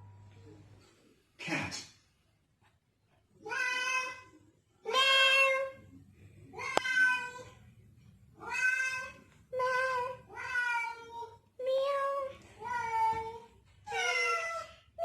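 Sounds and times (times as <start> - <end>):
toddler meowing like a cat: 8.4 - 14.7.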